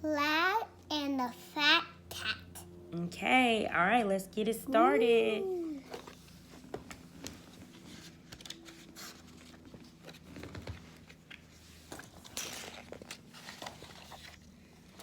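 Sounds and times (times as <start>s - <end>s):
picture book rustling and clicks: 5.9s - 15.0s.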